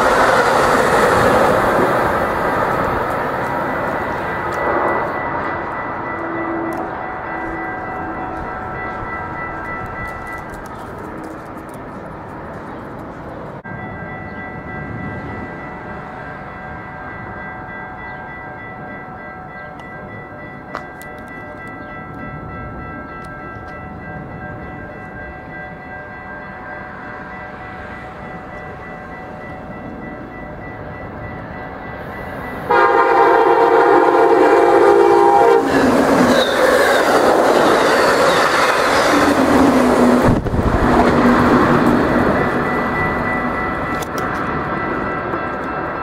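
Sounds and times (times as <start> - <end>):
crossing bells ringing: 0.0 - 46.0
train engine and wheel noise: 0.0 - 46.0
locomotive horn blast: 32.7 - 37.1.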